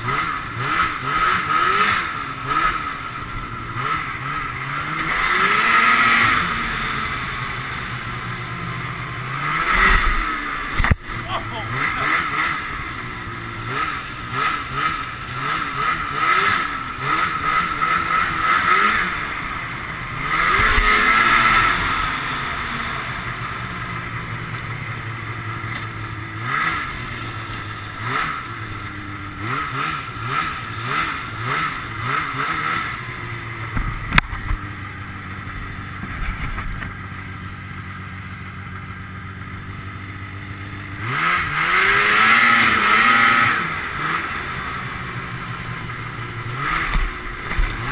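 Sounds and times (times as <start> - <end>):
snowmobile engine revving: 0.0 - 37.8, 38.4 - 47.9.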